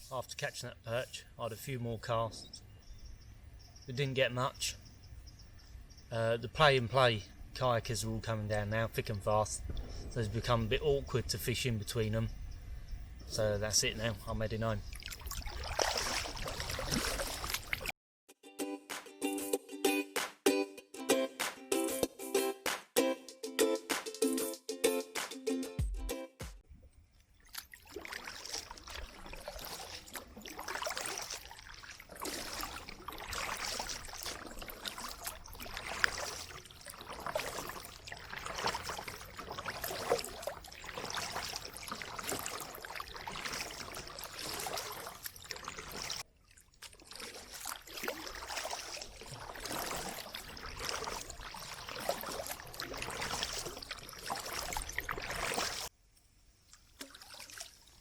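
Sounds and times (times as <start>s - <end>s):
paddle strokes in water: 13.8s - 17.9s, 27.4s - 55.9s, 56.7s - 58.0s
water dripping: 14.8s - 17.9s, 27.2s - 55.9s, 56.7s - 58.0s.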